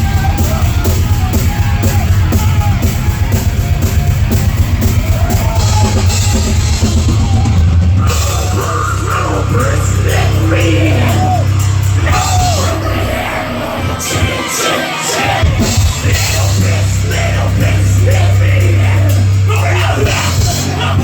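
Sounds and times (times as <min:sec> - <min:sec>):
heavy metal band playing live: 0:00.0 - 0:21.0.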